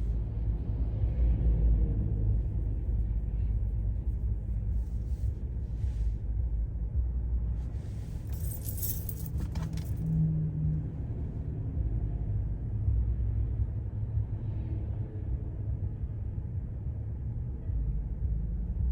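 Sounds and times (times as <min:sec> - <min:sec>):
car road rumble inside cabin: 0:00.0 - 0:18.9
metallic jingle rattling: 0:08.1 - 0:10.0.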